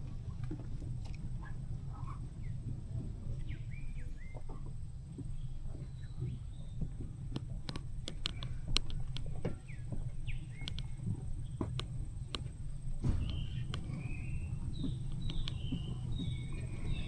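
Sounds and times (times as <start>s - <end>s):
steady low rumble: 0.0s - 17.0s
sharp clicks: 7.3s - 9.6s, 10.5s - 11.0s, 11.6s - 14.1s, 14.7s - 16.5s.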